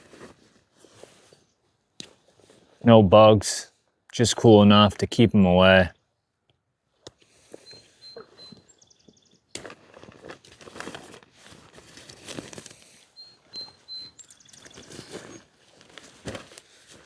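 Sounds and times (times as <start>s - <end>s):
songbird whistles and trill: 7.6s - 9.4s, 13.1s - 15.4s.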